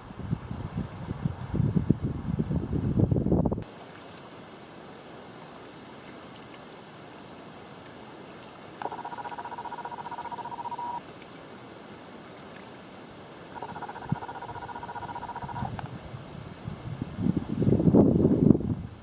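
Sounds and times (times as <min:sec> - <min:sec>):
steady background hiss: 0:00.0 - 0:19.0
animal trilling: 0:08.8 - 0:11.0, 0:13.6 - 0:15.7.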